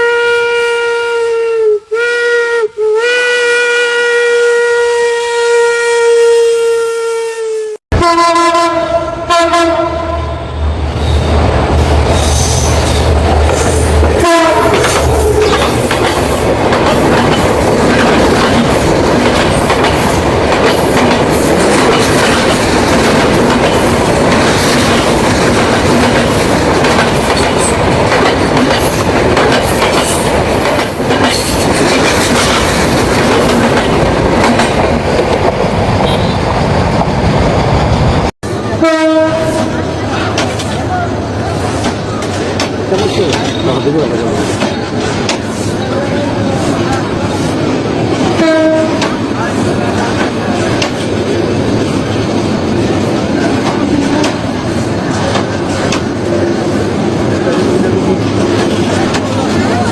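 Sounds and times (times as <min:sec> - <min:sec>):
train horn blast: 0:00.0 - 0:10.5, 0:14.2 - 0:15.0, 0:36.0 - 0:36.5, 0:38.5 - 0:39.8, 0:48.4 - 0:49.1
train rumbling past: 0:07.9 - 0:59.9.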